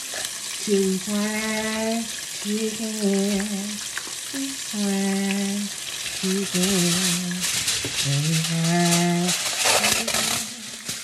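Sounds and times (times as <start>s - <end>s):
food deep-frying in hot oil: 0.0s - 11.0s
man humming: 8.0s - 9.4s.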